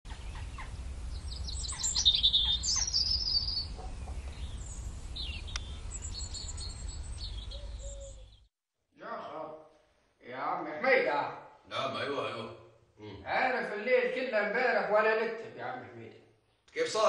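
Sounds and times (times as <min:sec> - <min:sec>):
birds chirping and twittering: 0:00.1 - 0:08.5.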